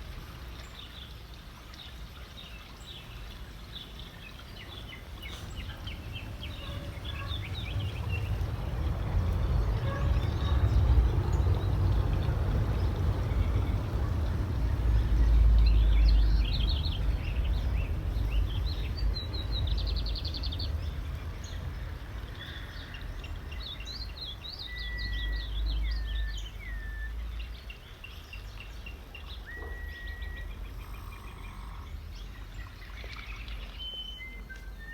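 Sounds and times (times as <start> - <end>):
outdoor background noise: 0.0 - 34.9
birds chirping and whistling: 24.6 - 27.6, 29.2 - 31.9, 33.4 - 34.9.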